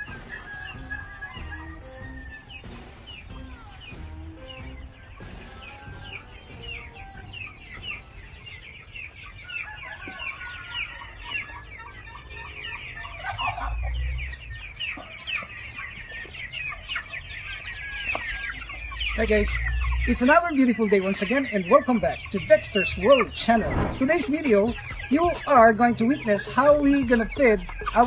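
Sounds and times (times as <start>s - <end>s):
chickens clucking: 0.0s - 28.0s
low rumble: 22.0s - 26.0s.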